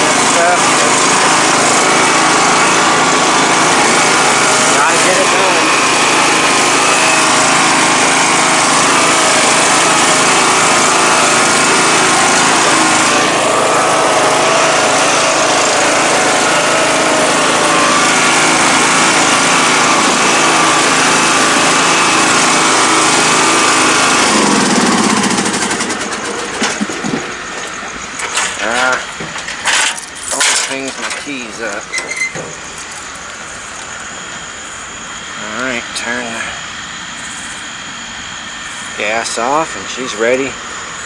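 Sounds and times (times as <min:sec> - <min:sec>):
engine winding down: 0:00.0 - 0:41.0
riding mower engine running: 0:00.0 - 0:41.0.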